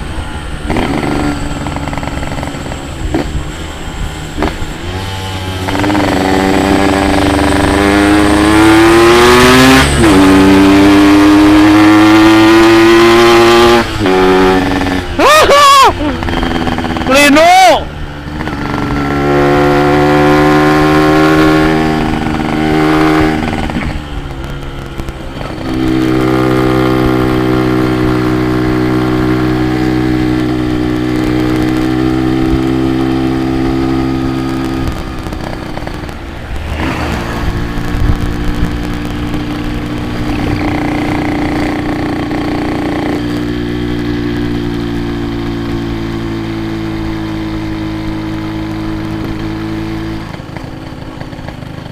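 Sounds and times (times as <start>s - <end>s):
two-stroke motorcycle engine running: 0.0s - 15.2s, 16.0s - 51.9s.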